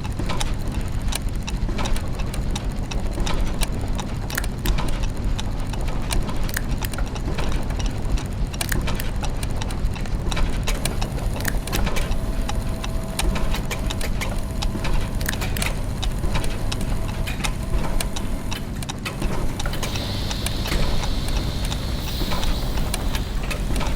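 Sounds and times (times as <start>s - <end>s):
clockwork gears ticking and clicking: 0.0s - 23.9s
low mechanical hum: 0.0s - 23.9s.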